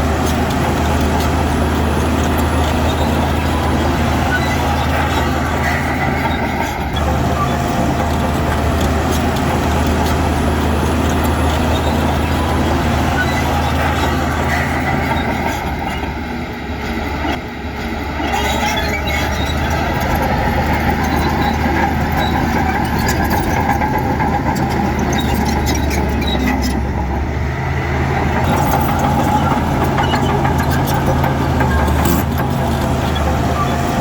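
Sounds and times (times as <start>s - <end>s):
diesel engine running: 0.0s - 34.0s
machine clanks and rattles: 28.4s - 34.0s.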